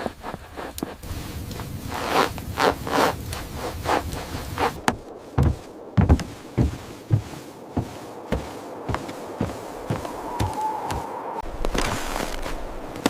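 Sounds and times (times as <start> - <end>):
scraping rustling strokes: 0.0 - 13.0
low thuds: 3.4 - 13.0.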